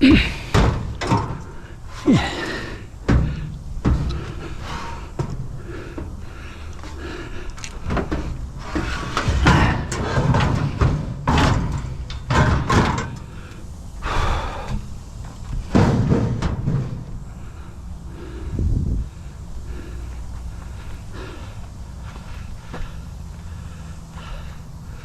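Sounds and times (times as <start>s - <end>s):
scrap thumping and clattering: 0.0s - 13.5s, 14.1s - 17.6s.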